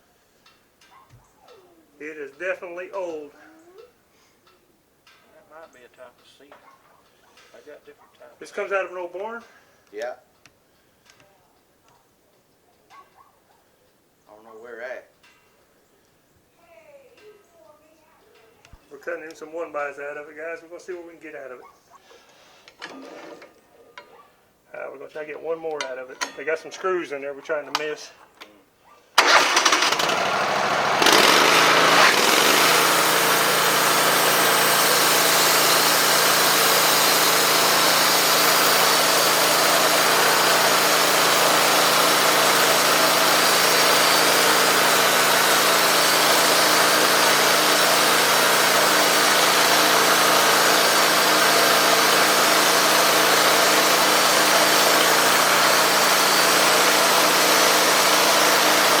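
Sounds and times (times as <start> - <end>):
sawmill gasoline engine running: 29.2 - 59.0.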